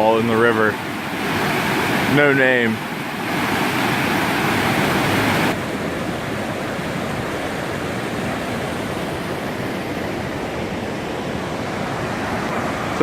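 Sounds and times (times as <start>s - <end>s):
river water rushing over cascade: 0.0s - 13.0s.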